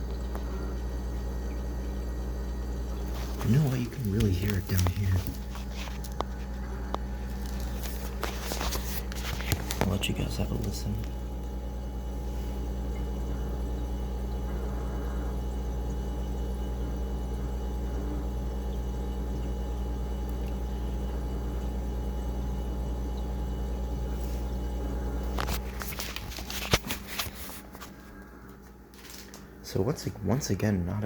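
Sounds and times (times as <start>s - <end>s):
refrigerator compressor hum: 0.0s - 31.0s
continuous hissing noise: 3.0s - 12.6s.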